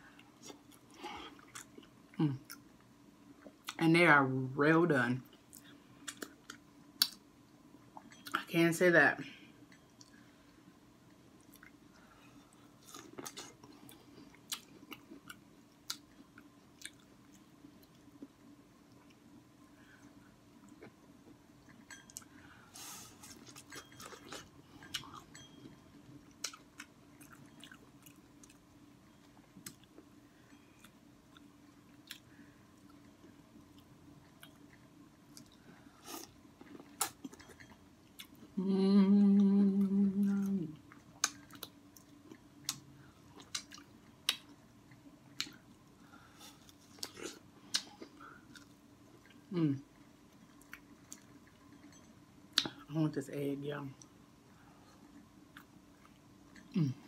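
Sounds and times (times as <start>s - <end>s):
person humming mmm: 38.5s - 40.8s, 49.5s - 49.9s, 56.7s - 57.0s.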